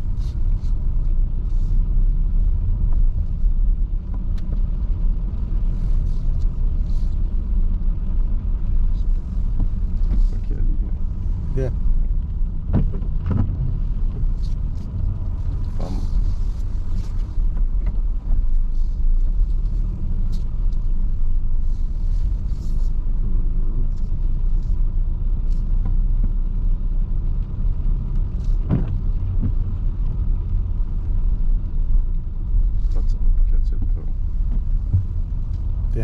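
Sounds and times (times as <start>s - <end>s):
car rumbling from inside cabin: 0.0s - 36.0s
rain tapping on car: 0.0s - 36.0s.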